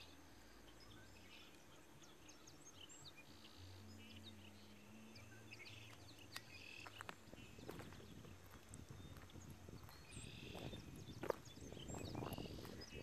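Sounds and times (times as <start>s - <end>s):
small birds chirping: 0.0s - 13.0s
footsteps through dry grass: 5.8s - 13.0s.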